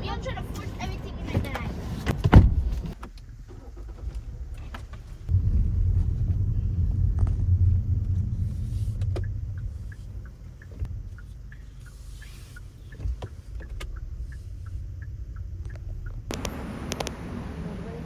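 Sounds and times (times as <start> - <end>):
car engine running: 0.0 - 18.0
clicks: 9.0 - 17.2.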